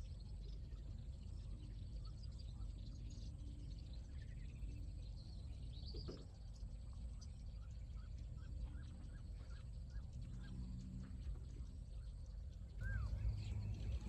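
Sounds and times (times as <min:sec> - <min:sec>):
low outdoor rumble: 0:00.0 - 0:14.0
small birds chirping and whistling: 0:00.0 - 0:14.0
rising whistle: 0:12.8 - 0:14.0.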